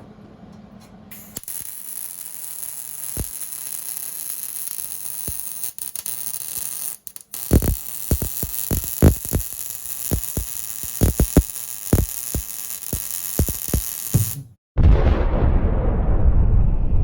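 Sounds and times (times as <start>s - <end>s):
welding arc hissing: 1.1s - 14.5s.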